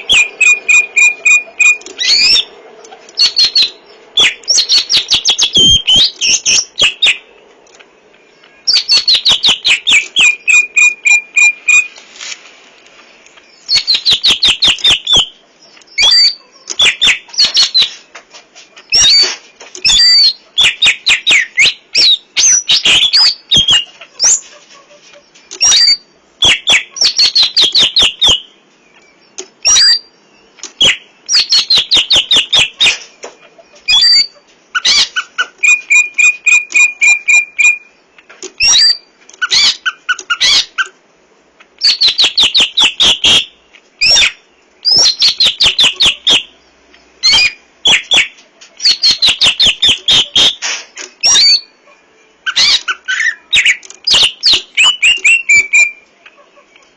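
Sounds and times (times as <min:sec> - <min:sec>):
bird singing whistled notes: 0:00.0 - 0:02.5, 0:03.2 - 0:07.3, 0:08.3 - 0:12.0, 0:13.2 - 0:18.0, 0:18.9 - 0:24.4, 0:25.5 - 0:40.8, 0:41.8 - 0:56.1
sharp clicks: 0:00.2 - 0:03.4, 0:30.6 - 0:33.4, 0:52.8 - 0:55.8.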